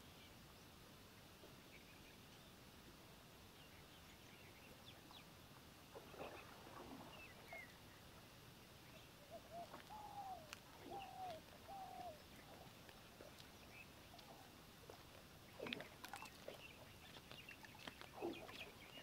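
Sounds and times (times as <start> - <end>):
faint bird calls: 8.8 - 19.0.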